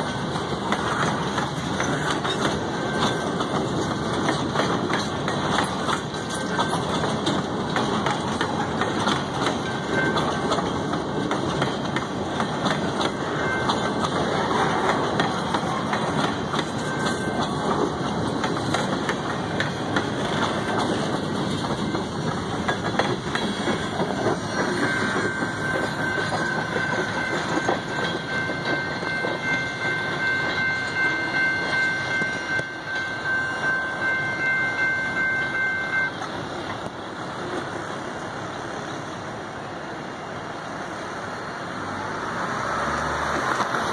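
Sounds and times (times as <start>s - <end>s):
wheels clacking over rail joints: 0.0s - 39.3s, 41.0s - 43.9s
steel wheels rumbling on rail: 0.0s - 43.9s.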